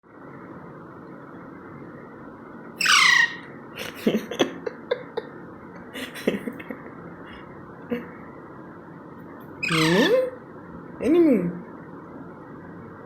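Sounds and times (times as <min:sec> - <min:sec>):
parakeet squawk: 0:02.8 - 0:03.5, 0:09.6 - 0:10.4.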